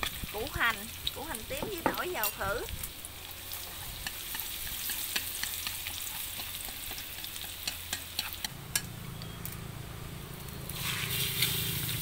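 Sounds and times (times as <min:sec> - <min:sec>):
crackles and pops in pan: 0:00.0 - 0:09.7
shallots and garlic sizzling: 0:00.0 - 0:12.0.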